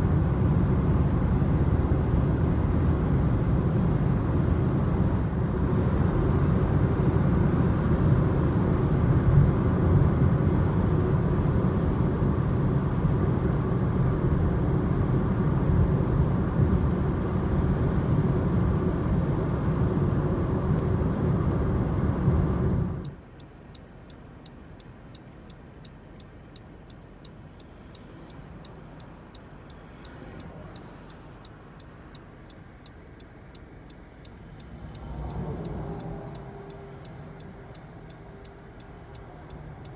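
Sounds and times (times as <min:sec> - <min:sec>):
car cabin road rumble: 0:00.0 - 0:39.9
indicator flasher ticking: 0:23.0 - 0:39.9.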